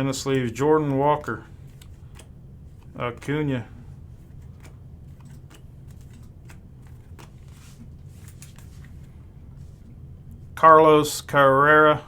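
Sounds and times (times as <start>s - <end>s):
low steady hum: 0.0s - 12.0s
cards in plastic sleeves clicking: 1.2s - 3.6s, 4.2s - 8.8s.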